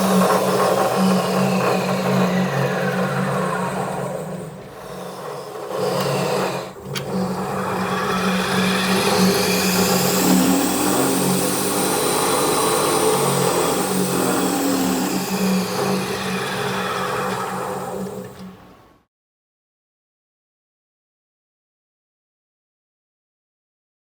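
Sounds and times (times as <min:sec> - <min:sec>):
polishing lathe motor hum: 0:00.0 - 0:18.8
motor whine: 0:00.0 - 0:18.9.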